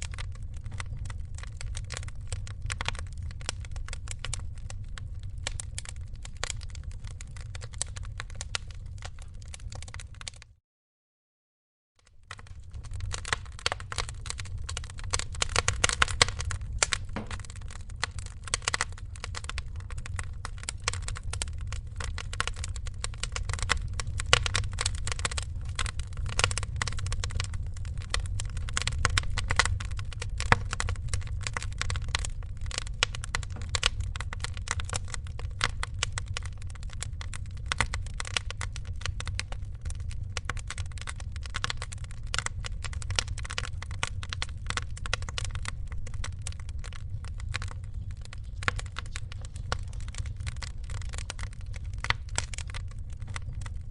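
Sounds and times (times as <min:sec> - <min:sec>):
fire pops: 0:00.0 - 0:10.5, 0:12.0 - 0:53.9
wood fire crackling: 0:00.0 - 0:10.5, 0:12.0 - 0:53.9
low rumble: 0:12.3 - 0:38.1.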